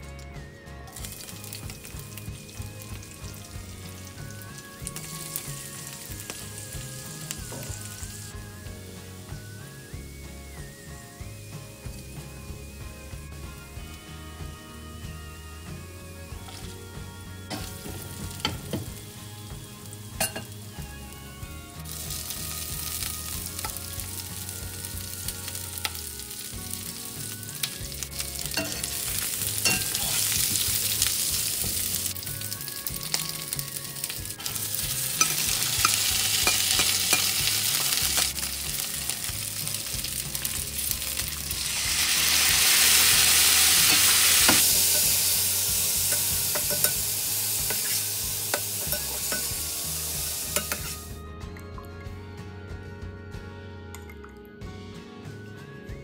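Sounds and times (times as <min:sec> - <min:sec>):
food sizzling in hot oil: 0:00.9 - 0:51.2.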